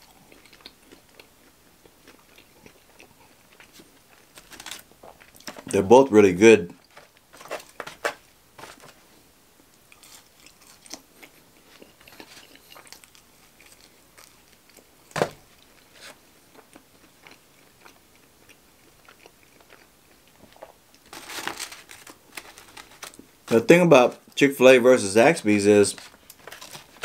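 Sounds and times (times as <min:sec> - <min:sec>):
person chewing crunchy food: 0:00.0 - 0:05.6, 0:09.8 - 0:23.4.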